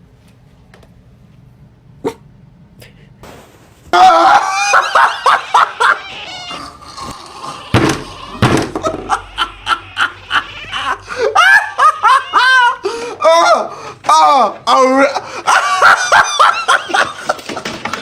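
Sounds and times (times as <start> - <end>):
person laughing hard: 4.0 - 14.0, 14.7 - 17.9.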